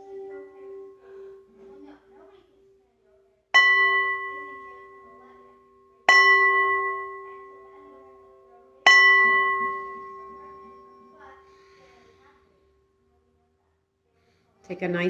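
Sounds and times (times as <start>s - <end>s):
singing bowl ringing: 0.0s - 2.8s, 3.6s - 11.8s.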